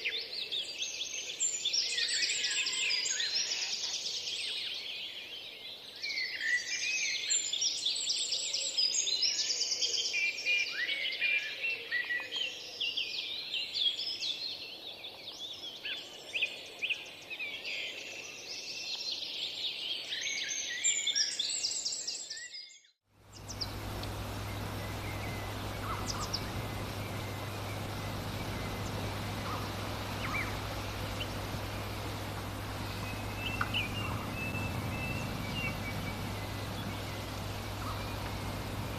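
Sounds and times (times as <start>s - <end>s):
chorus of songbirds singing: 0.0s - 38.9s
low hum and hiss: 23.2s - 38.9s
scattered bird chirps: 23.3s - 38.9s.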